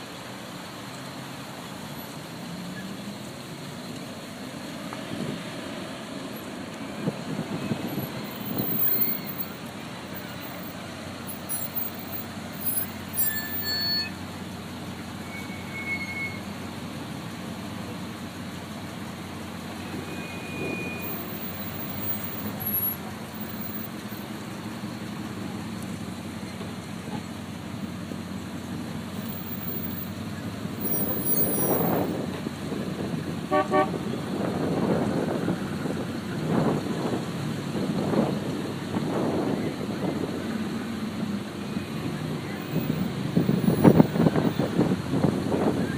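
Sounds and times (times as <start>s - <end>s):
car engines running: 0.0s - 45.9s
cars driving past: 0.0s - 45.9s.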